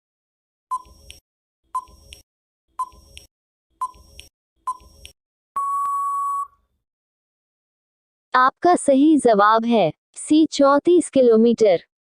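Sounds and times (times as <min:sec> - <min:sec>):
short electronic beeps: 0:00.7 - 0:01.0, 0:03.8 - 0:04.1, 0:04.7 - 0:05.0, 0:05.6 - 0:06.6
long steady beep: 0:05.6 - 0:06.6.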